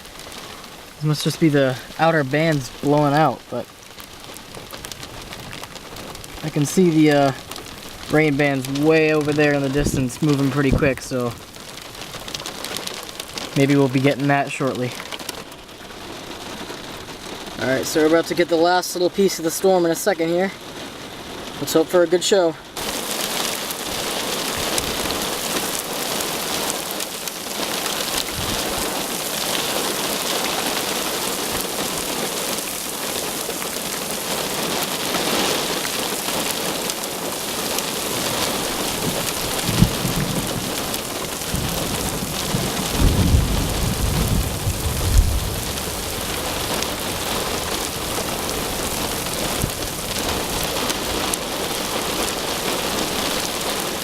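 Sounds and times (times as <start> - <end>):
heavy rain falling: 0.0 - 54.0
thunder rumbling and cracking: 4.4 - 15.1, 22.8 - 54.0.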